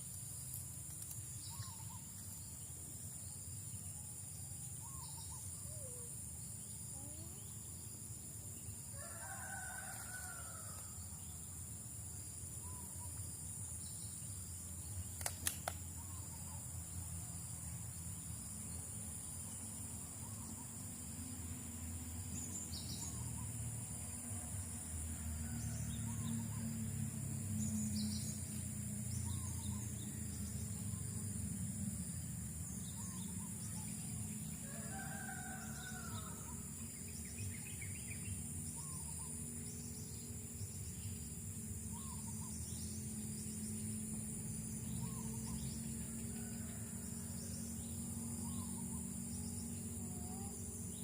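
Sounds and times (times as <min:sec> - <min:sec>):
high insect drone: 0:00.0 - 0:51.0
distant rooster crowing: 0:08.9 - 0:11.2, 0:34.5 - 0:36.7, 0:46.0 - 0:47.6
sharp clicks: 0:15.1 - 0:15.9.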